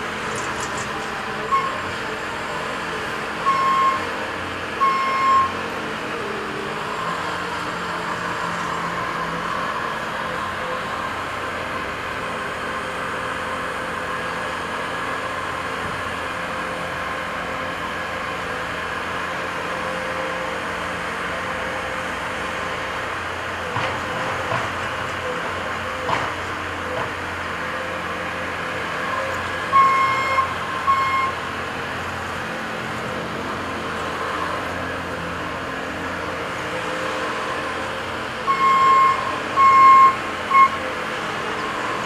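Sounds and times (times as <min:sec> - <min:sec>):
diesel engine running: 0:00.0 - 0:42.0
reversing alarm beeps: 0:01.5 - 0:01.8, 0:03.4 - 0:04.0, 0:04.8 - 0:05.6, 0:29.7 - 0:31.4, 0:38.5 - 0:40.8.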